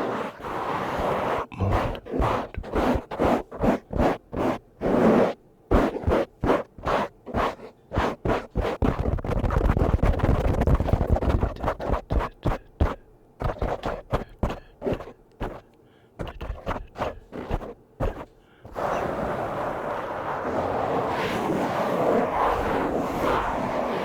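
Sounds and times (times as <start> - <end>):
brush scratching on microphone: 0.0 - 24.0
steady rushing noise: 17.0 - 24.0.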